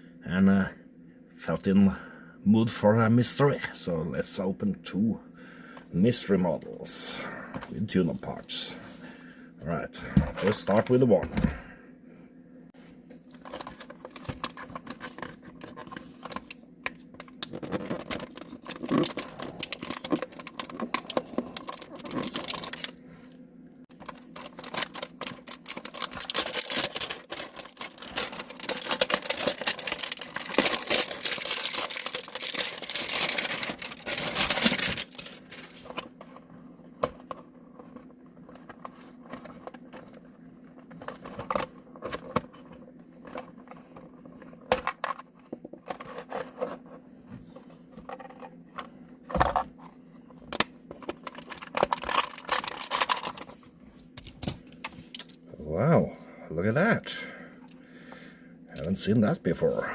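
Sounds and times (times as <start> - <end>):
packaging crinkling and tearing: 13.3 - 16.6, 17.2 - 22.9, 23.9 - 36.1, 51.0 - 55.4.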